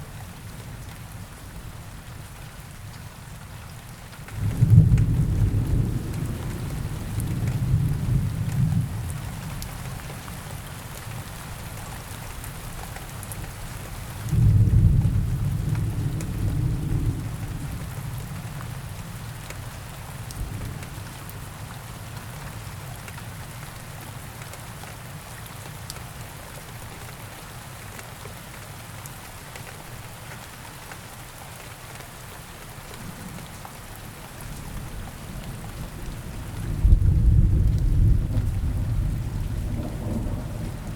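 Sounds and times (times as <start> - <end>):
steady rain: 0.0 - 40.9
low thunder rumbling: 4.5 - 9.1, 34.8 - 40.9.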